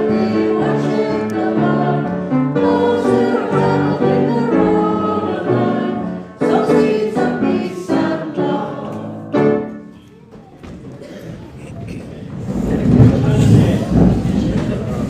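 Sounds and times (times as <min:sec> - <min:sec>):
group singing a hymn: 0:00.0 - 0:09.7
room noise: 0:00.0 - 0:15.0.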